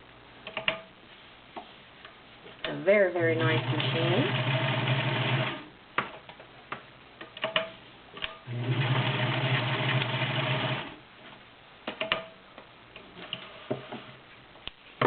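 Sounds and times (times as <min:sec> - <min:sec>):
sewing machine stitching: 0:03.3 - 0:05.7, 0:08.5 - 0:11.0.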